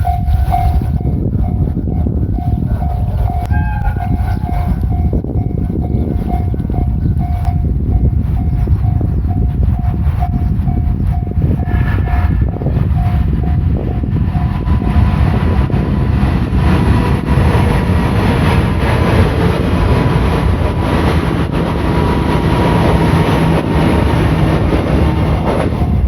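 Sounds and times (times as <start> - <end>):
crossing bell ding: 0.0 - 9.1
train wheels rumbling on rail: 0.0 - 26.0.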